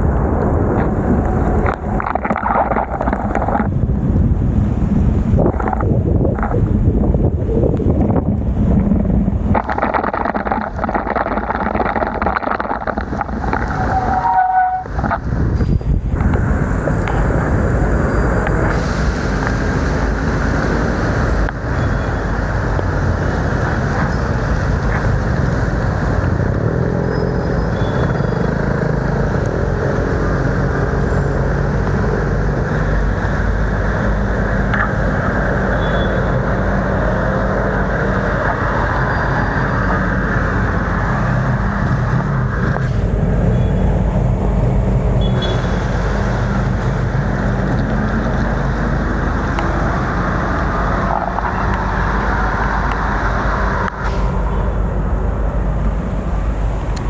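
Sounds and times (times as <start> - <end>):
heavy rain: 0.0 - 43.4
bicycle road noise: 0.0 - 57.0
motor traffic: 0.0 - 57.0.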